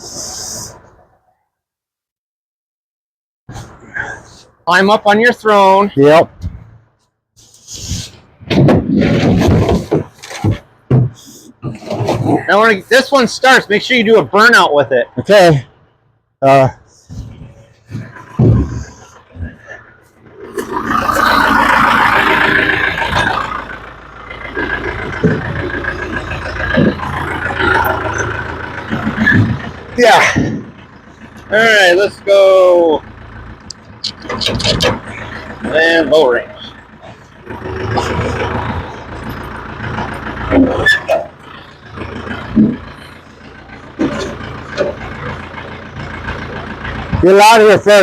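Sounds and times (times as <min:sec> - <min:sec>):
short clunks: 0:07.9 - 0:12.5, 0:17.0 - 0:19.8, 0:27.8 - 0:30.8
vehicle engine running: 0:09.3 - 0:48.0.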